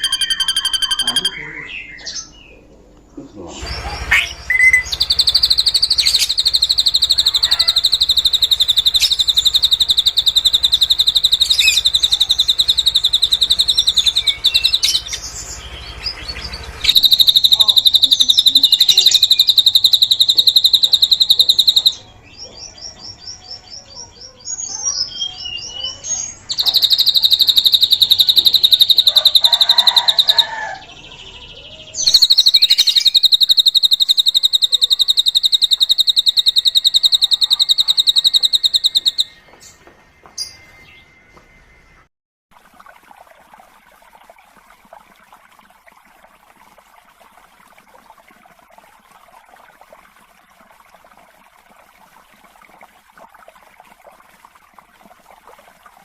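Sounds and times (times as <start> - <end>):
bird singing fast high trill: 0.0 - 2.3, 4.1 - 15.6, 16.2 - 22.1, 24.9 - 30.5, 32.0 - 39.4
soft bird twitters: 3.2 - 15.2, 16.8 - 22.6, 23.5 - 30.6, 32.0 - 39.4.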